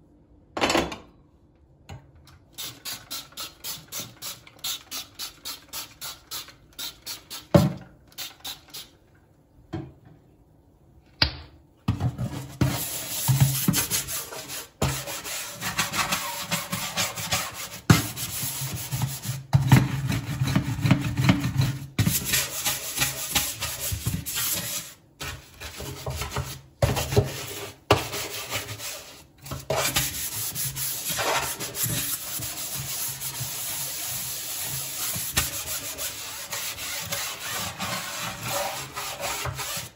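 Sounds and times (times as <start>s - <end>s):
scrubbing kitchen surface: 12.2s - 39.9s.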